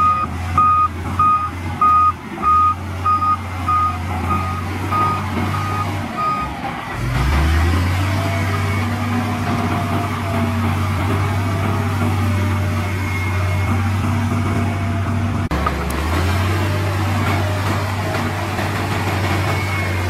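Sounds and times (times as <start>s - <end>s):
heavy diesel engine droning: 0.0s - 20.0s.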